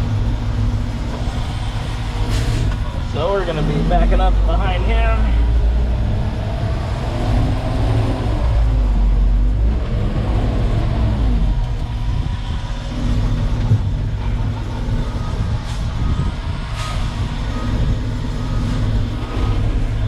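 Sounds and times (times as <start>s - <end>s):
diesel engine running: 0.0s - 20.0s
faint regular beeping: 14.1s - 20.0s.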